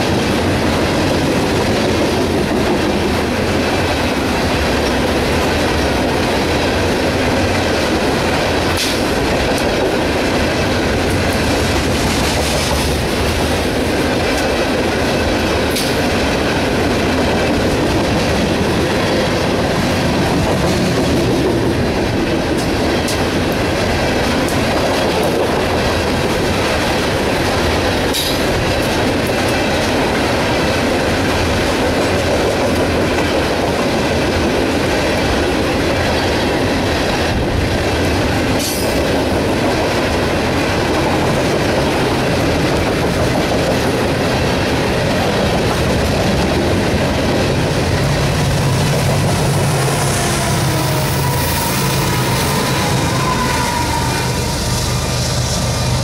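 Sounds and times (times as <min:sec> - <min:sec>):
freight train wheels rumbling: 0:00.0 - 0:56.0
high wheel squeals: 0:49.8 - 0:55.2.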